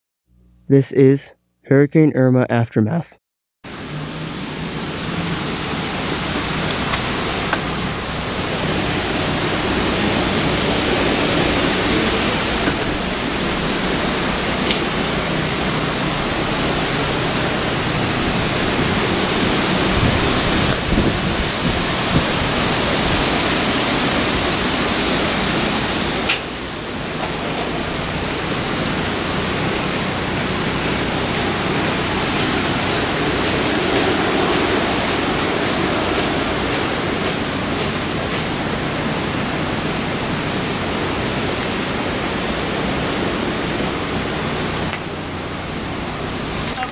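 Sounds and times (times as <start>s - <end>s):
loud rushing noise: 3.7s - 46.4s
high chirps: 4.6s - 5.4s.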